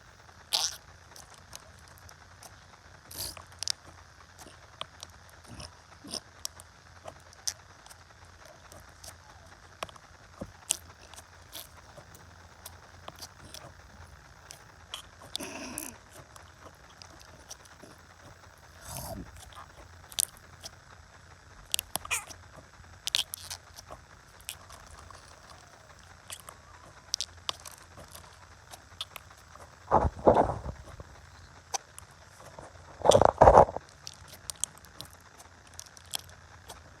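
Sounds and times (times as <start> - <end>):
slime clicking and crackling: 0.3 - 37.0.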